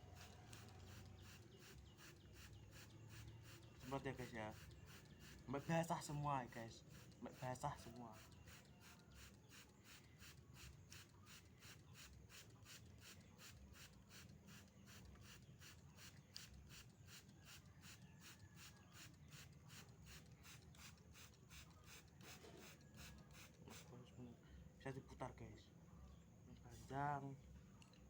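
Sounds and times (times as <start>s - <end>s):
spray bottle squirts: 9.2s - 23.9s.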